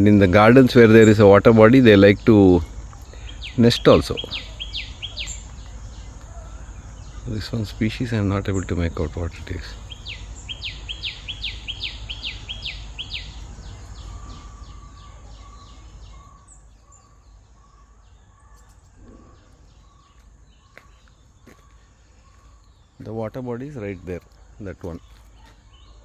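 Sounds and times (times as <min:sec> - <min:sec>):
bird calling sharp notes: 0:00.0 - 0:16.5.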